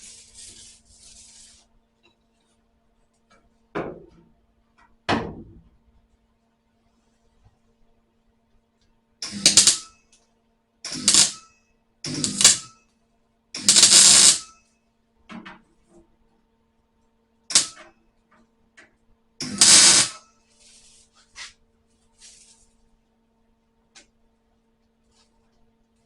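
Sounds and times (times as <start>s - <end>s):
crackling weld bursts: 9.2s - 9.9s, 10.9s - 11.5s, 12.1s - 12.7s, 13.6s - 14.5s, 17.5s - 17.8s, 19.4s - 20.3s.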